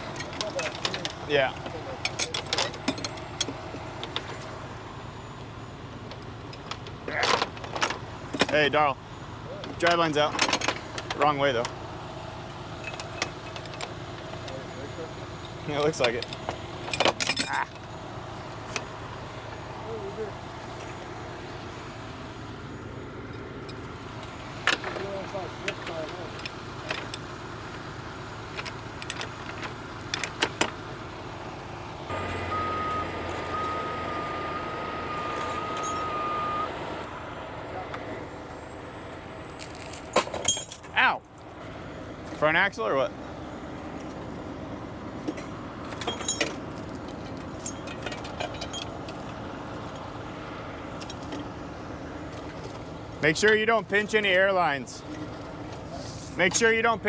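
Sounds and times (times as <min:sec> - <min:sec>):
metallic clinks and knocks: 0:00.0 - 0:04.5, 0:12.8 - 0:14.5, 0:15.8 - 0:17.8, 0:35.4 - 0:36.6, 0:39.4 - 0:41.0, 0:45.3 - 0:50.1, 0:51.0 - 0:51.5
truck engine revving: 0:07.9 - 0:39.9
steady high whine: 0:31.6 - 0:41.5.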